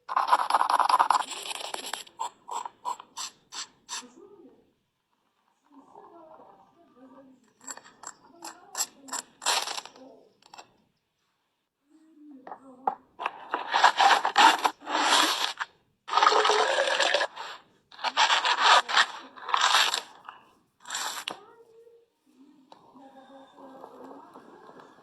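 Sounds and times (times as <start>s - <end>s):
rough scraping strokes: 7.7s - 10.6s, 13.2s - 21.4s.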